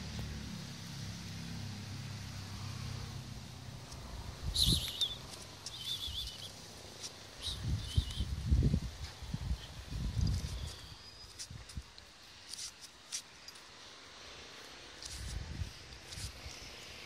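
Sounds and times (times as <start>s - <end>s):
high warbling bird chirps: 4.5s - 6.6s, 7.4s - 8.4s.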